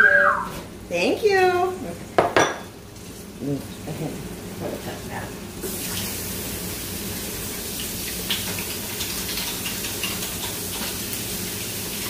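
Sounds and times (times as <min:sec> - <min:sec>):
shrimp sizzling in a frying pan: 0:04.4 - 0:12.0.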